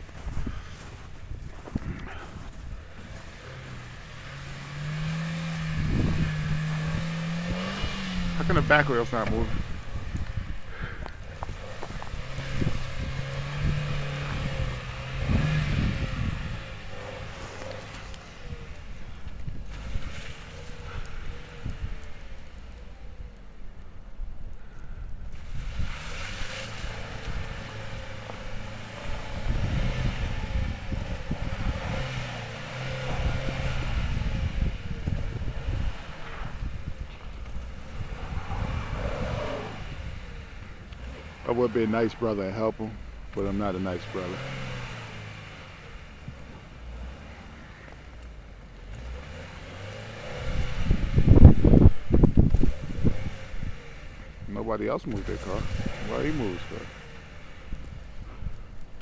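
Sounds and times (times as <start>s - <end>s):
wind on microphone: 0.0s - 23.1s, 24.2s - 41.2s, 50.1s - 56.8s
car engine revving: 0.0s - 24.0s, 24.6s - 59.0s.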